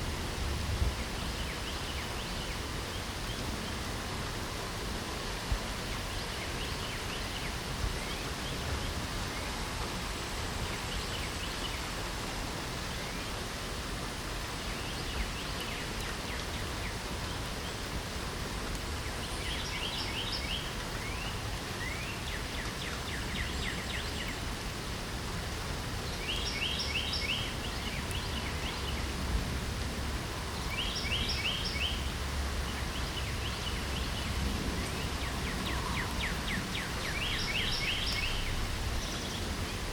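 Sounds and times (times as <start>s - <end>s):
light rain hissing: 0.0s - 39.9s
songbirds chirping and trilling: 18.7s - 24.6s, 25.9s - 29.5s, 30.1s - 39.9s.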